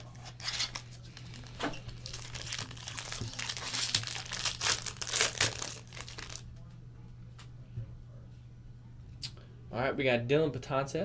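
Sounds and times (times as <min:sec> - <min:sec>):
plastic wrapping crinkling and tearing: 0:00.0 - 0:06.5.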